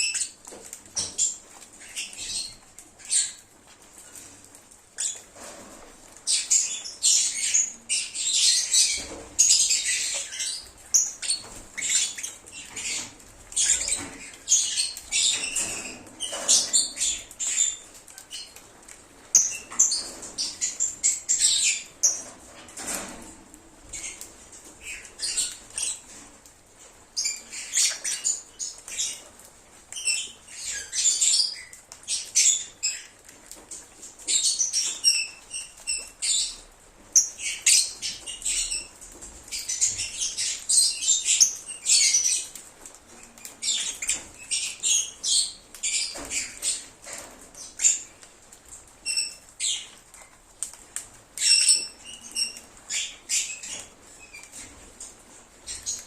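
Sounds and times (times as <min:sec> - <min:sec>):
lovebirds chirping: 0:00.0 - 0:03.4, 0:06.1 - 0:18.6, 0:23.9 - 0:26.2, 0:27.2 - 0:29.3, 0:34.2 - 0:48.3.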